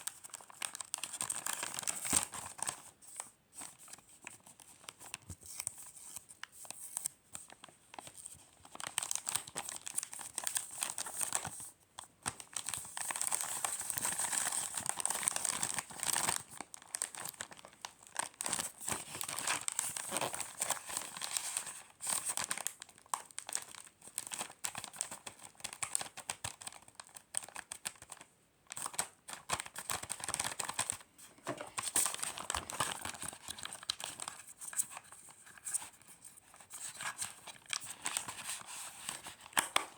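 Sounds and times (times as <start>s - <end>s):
packaging material crinkling: 0.0s - 2.9s, 6.6s - 11.6s, 12.3s - 39.9s.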